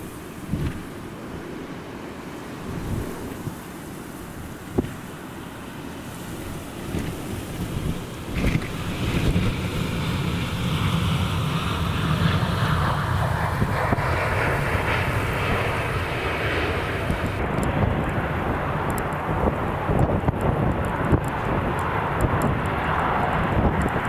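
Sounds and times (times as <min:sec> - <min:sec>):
jet engines running: 0:03.2 - 0:24.0.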